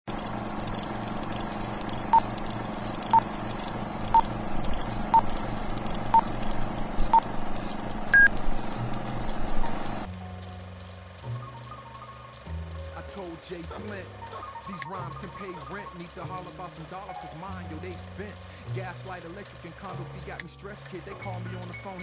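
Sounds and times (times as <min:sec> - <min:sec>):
background hum: 0:00.1 - 0:22.0
electronic countdown beeps: 0:08.1 - 0:08.3.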